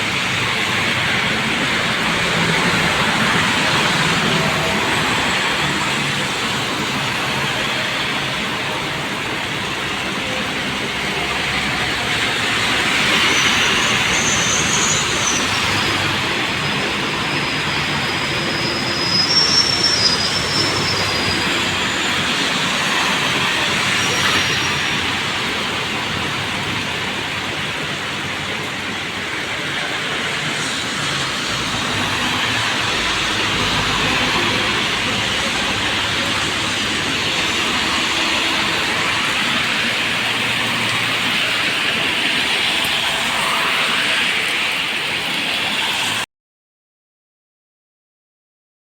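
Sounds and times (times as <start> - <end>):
tyres hissing on wet road: 0.0 - 46.3
high-pitched squeals: 12.3 - 25.6.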